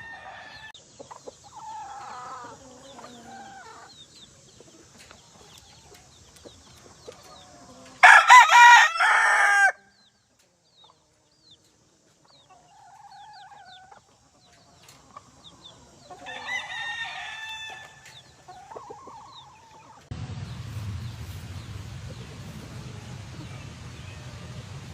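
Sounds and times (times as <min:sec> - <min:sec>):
roosters crowing: 0:00.0 - 0:10.1, 0:12.5 - 0:20.1.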